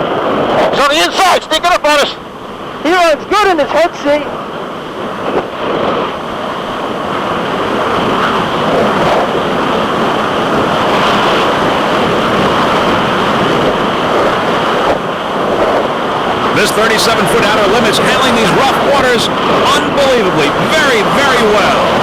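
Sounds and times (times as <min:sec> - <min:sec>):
wind and water rushing: 0:00.0 - 0:22.0.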